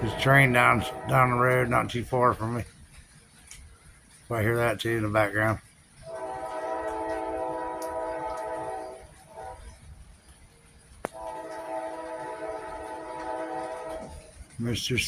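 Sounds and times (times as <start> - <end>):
distant train horn blasts: 0.0 - 2.6, 6.0 - 10.2, 11.1 - 14.6.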